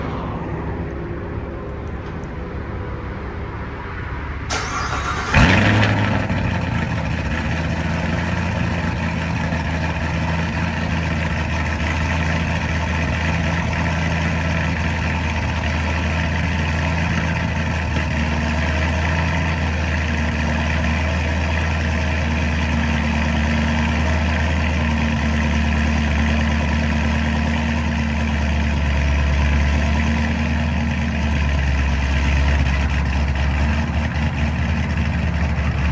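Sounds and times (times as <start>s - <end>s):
car engine idling: 0.0s - 35.9s
engine firing with loud flare: 4.5s - 11.9s
car engine cranking: 4.5s - 21.6s.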